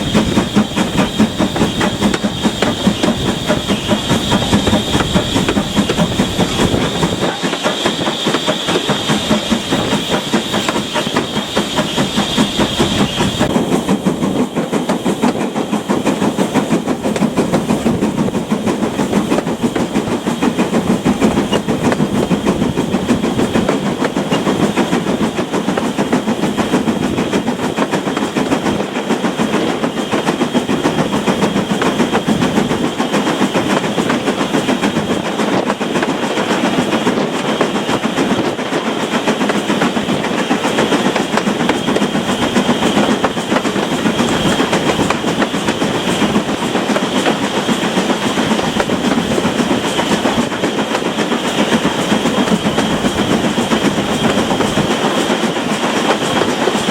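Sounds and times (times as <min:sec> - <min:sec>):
high steady squeal: 0:00.0 - 0:13.6
steam train running: 0:00.0 - 0:56.9.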